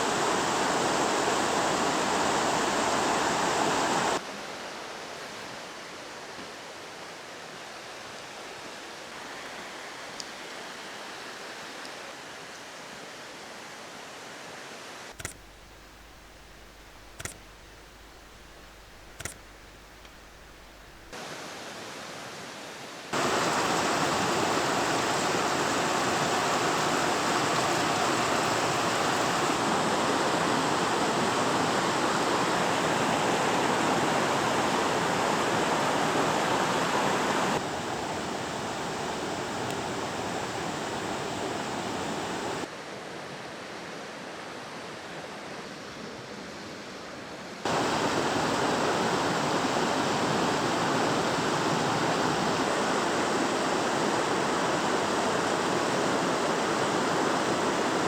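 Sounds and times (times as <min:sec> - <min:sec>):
waterfall rushing: 0:00.0 - 0:04.2, 0:23.1 - 0:42.7, 0:47.7 - 0:58.0.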